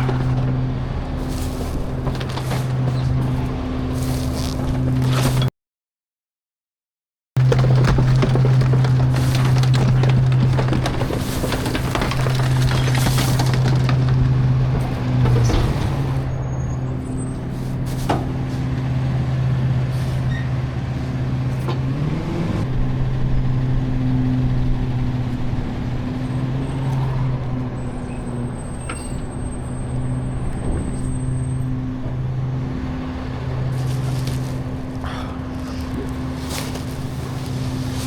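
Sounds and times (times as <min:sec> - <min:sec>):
garbage truck engine droning: 0:00.0 - 0:05.5, 0:07.4 - 0:38.0
clicks and knocks: 0:07.4 - 0:15.8.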